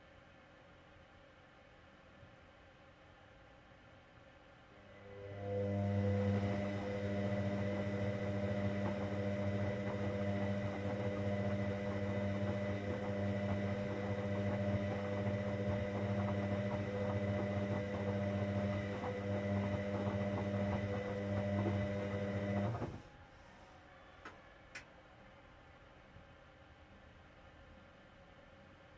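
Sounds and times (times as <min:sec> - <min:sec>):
washing machine drain pump humming: 0:04.8 - 0:23.1.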